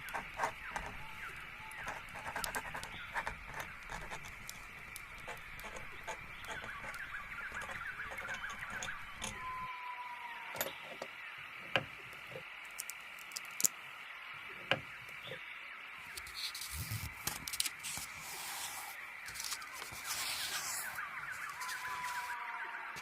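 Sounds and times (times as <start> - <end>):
birds chirping and twittering: 0.0 - 23.0
steady high hiss: 10.2 - 23.0
drawn-out falling bird call: 19.3 - 23.0.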